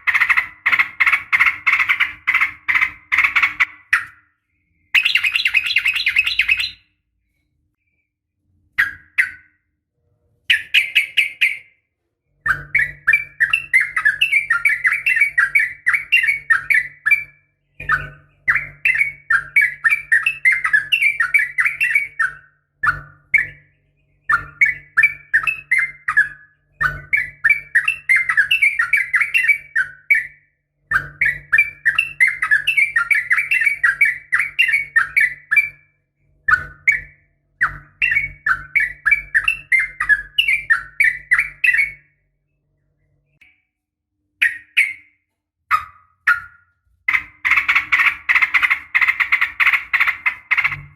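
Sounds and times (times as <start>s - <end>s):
bird bubbling chatter: 47.1s - 50.9s.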